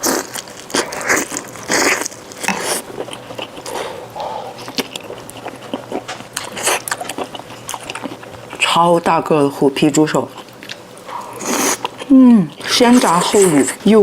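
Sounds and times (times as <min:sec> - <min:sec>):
chewing: 0:00.0 - 0:08.8, 0:10.2 - 0:13.8.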